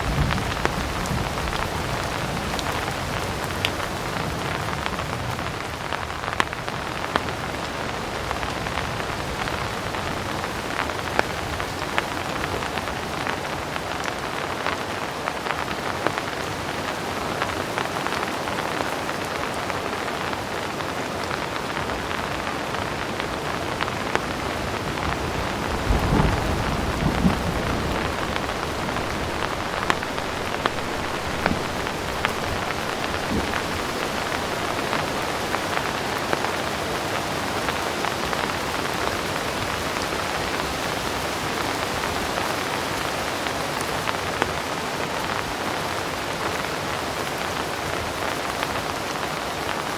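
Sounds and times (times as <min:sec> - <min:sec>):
heavy rain falling: 0:00.0 - 0:49.9
distant thunder rumbling: 0:24.6 - 0:35.8.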